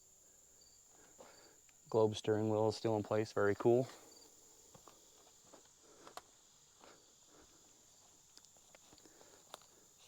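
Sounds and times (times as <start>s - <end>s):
insect chirring: 0.0s - 2.0s
soft footsteps: 4.7s - 10.0s.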